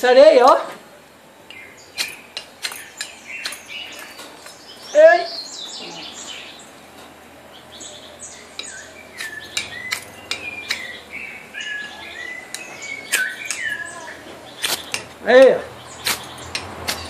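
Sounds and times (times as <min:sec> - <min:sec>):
birds chirping and calling: 0:01.4 - 0:17.0
knife clicks: 0:08.6 - 0:10.9, 0:12.5 - 0:13.7.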